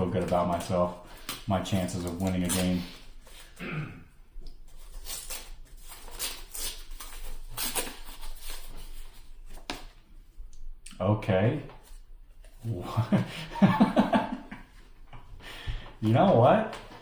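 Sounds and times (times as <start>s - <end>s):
cards rustling: 0.0s - 3.6s.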